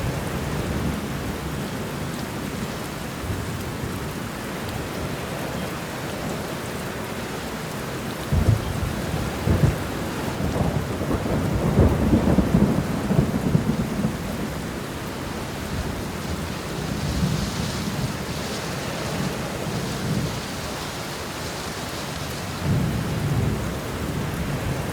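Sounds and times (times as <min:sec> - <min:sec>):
steady rain: 0:00.0 - 0:24.9
rolling thunder: 0:08.3 - 0:20.7, 0:22.6 - 0:24.9.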